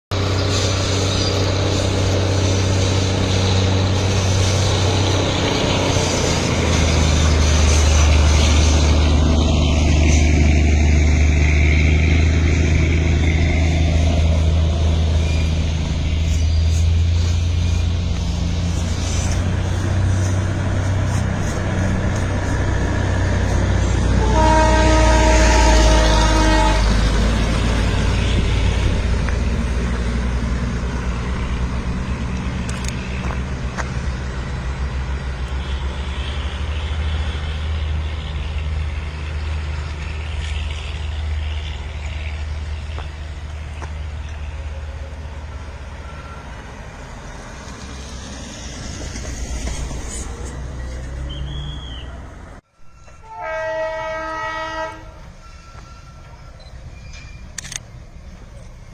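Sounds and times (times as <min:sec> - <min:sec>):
train rumbling: 0:00.0 - 0:58.9
train horn blast: 0:24.0 - 0:27.6, 0:53.0 - 0:56.4.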